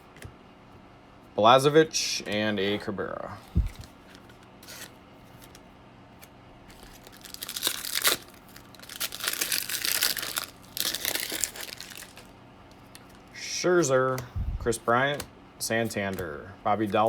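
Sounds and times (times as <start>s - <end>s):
foil wrapper tearing and crinkling: 3.6s - 5.6s, 6.7s - 13.2s.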